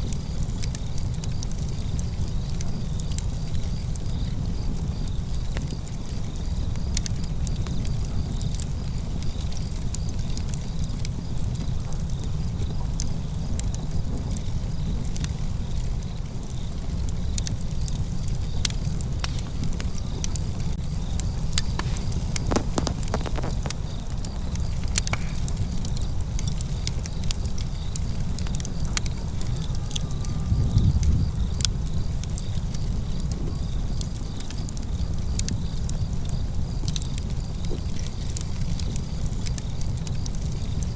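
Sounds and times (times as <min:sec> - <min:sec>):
fire crackling: 0:14.4 - 0:29.3
sharp pops: 0:21.2 - 0:25.4.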